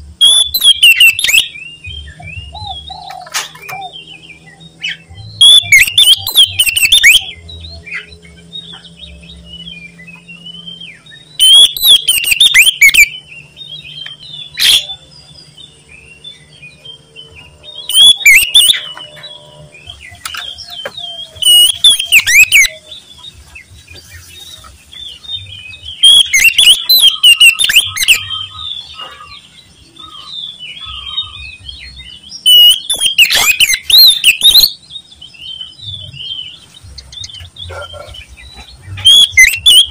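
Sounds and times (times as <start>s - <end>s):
bird singing whistled song: 0.2s - 39.9s.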